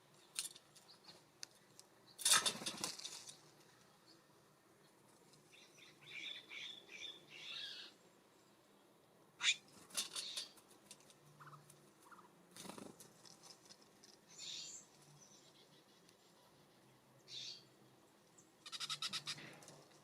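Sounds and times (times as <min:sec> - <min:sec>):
wingbeats fluttering: 0:02.2 - 0:03.8, 0:09.6 - 0:14.3
small birds chattering: 0:03.2 - 0:08.4, 0:09.4 - 0:13.0, 0:14.1 - 0:20.0.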